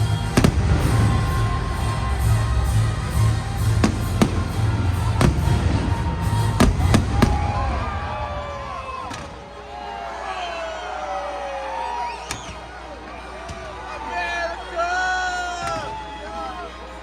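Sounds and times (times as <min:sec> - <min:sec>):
music with heavy low beat: 0:00.0 - 0:08.1
fireworks bangs: 0:00.0 - 0:09.4.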